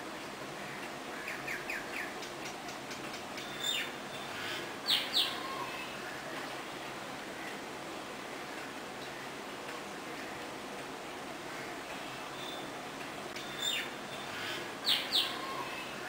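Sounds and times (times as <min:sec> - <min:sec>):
steady hiss: 0:00.0 - 0:16.0
small birds chirping: 0:00.8 - 0:07.6, 0:11.7 - 0:16.0.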